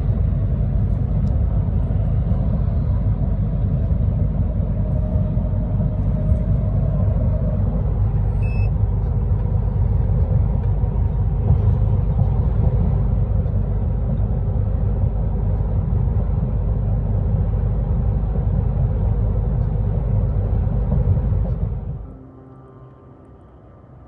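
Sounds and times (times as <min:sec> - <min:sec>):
truck engine and road rumble: 0:00.0 - 0:24.0
short electronic beep: 0:08.4 - 0:08.8.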